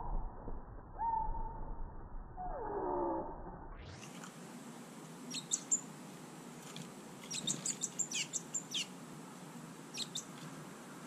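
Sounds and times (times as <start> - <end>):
songbirds chirping: 4.6 - 11.0.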